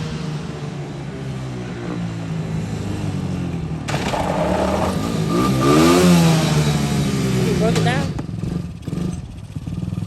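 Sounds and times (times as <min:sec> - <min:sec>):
atv engine running: 0:03.9 - 0:10.0.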